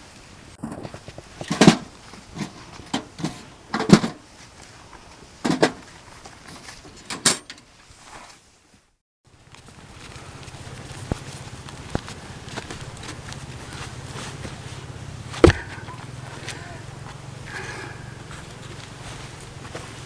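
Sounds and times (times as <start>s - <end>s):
irregular knocks and thuds: 15.3s - 16.1s.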